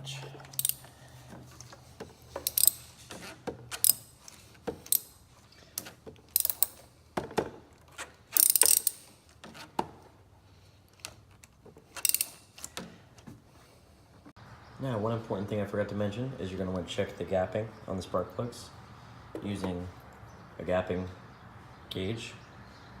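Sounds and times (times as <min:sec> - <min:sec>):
hand ratchet clicking: 0:00.5 - 0:00.9, 0:02.4 - 0:03.0, 0:03.7 - 0:05.2, 0:05.8 - 0:06.9, 0:08.3 - 0:09.2, 0:12.0 - 0:12.8
metallic clinks of tools: 0:00.5 - 0:00.9, 0:02.4 - 0:03.0, 0:06.3 - 0:06.9, 0:08.4 - 0:09.1.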